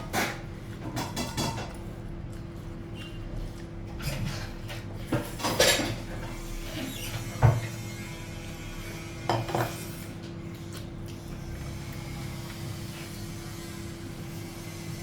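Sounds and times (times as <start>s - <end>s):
dishes and utensils clinking: 0.2s - 1.8s, 5.2s - 6.0s.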